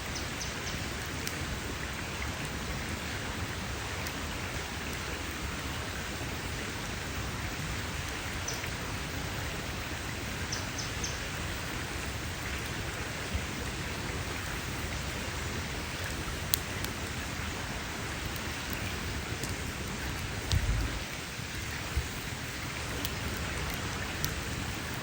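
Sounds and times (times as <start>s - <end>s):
campfire crackling and hissing: 0.0s - 25.0s
fire popping: 10.6s - 25.0s.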